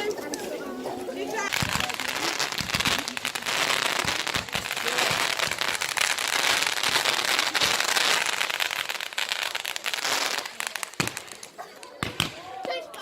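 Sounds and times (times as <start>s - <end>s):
fireworks crackling: 0.0s - 13.0s
deep firework bang: 1.5s - 7.9s.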